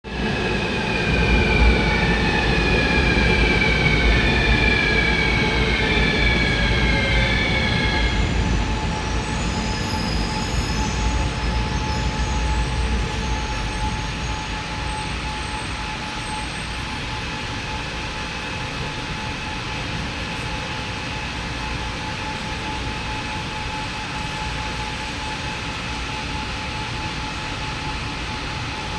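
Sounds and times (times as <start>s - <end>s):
train rumble: 0.0s - 28.9s.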